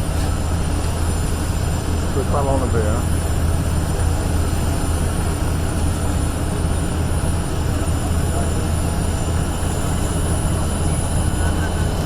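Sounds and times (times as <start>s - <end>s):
aircraft engine rumble: 0.0s - 12.0s.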